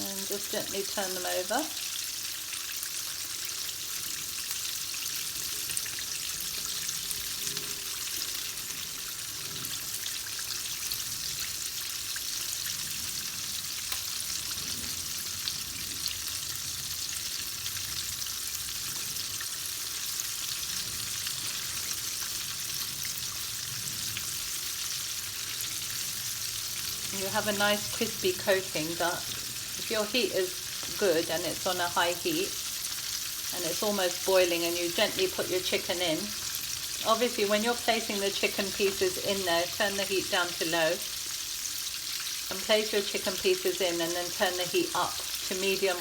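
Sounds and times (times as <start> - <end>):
chicken deep-frying in oil: 0.0 - 46.0.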